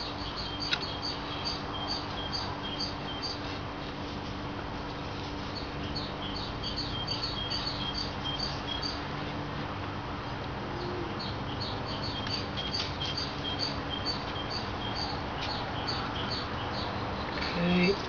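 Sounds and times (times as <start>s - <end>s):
small birds chirping: 0.0s - 3.6s, 5.2s - 9.0s, 10.7s - 18.0s.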